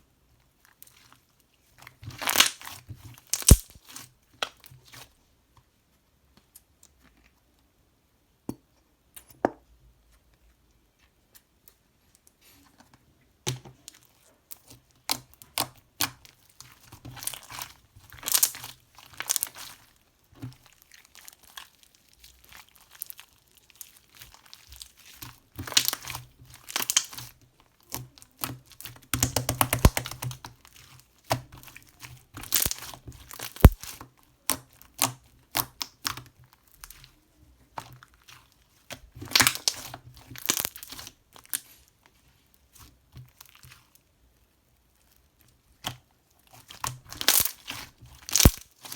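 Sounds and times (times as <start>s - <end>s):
material crinkling and tearing: 2.2s - 4.0s, 17.2s - 27.3s, 29.2s - 31.0s, 32.4s - 34.1s, 39.2s - 41.6s, 46.7s - 48.9s
sharp clicks: 3.4s - 3.8s.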